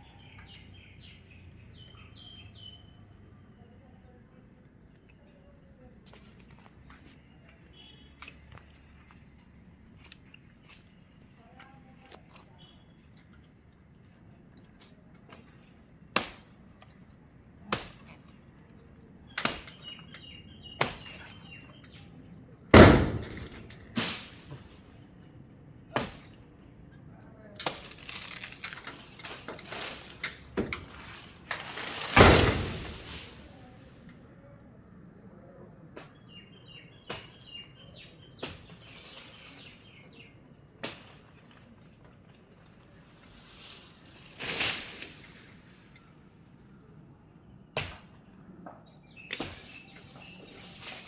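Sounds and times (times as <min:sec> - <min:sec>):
small bird chirping: 0:00.0 - 0:04.2, 0:04.8 - 0:09.2, 0:09.8 - 0:13.5
birds chirping: 0:00.0 - 0:40.7, 0:41.4 - 0:43.8, 0:45.1 - 0:51.0.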